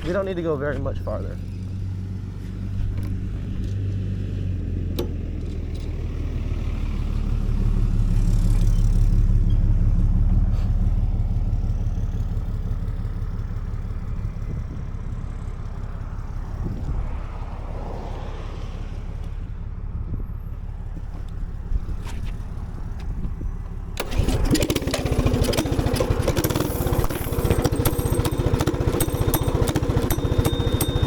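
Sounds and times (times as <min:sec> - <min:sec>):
wind on microphone: 0:16.5 - 0:17.7
minibike engine running: 0:20.9 - 0:31.0.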